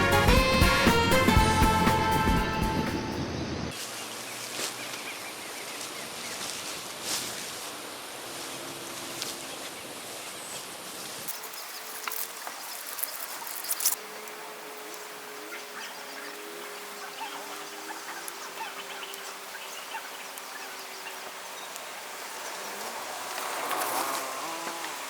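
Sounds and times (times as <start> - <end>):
music: 0.0 - 3.3
steady background hiss: 3.3 - 25.0.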